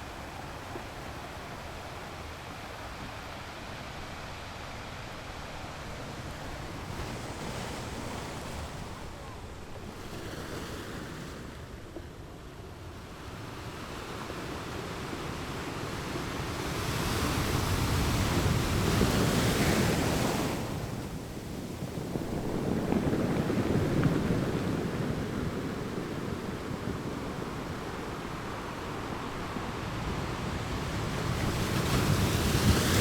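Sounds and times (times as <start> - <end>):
waves breaking on rocks: 17.2 - 33.0.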